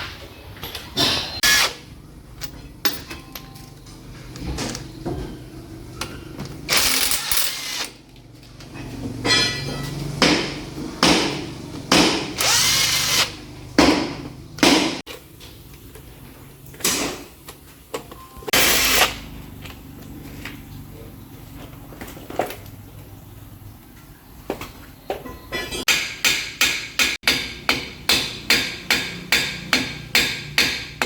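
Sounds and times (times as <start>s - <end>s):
power tool bursts: 1.4s - 1.8s, 6.7s - 8.0s, 12.4s - 13.4s, 18.6s - 19.2s.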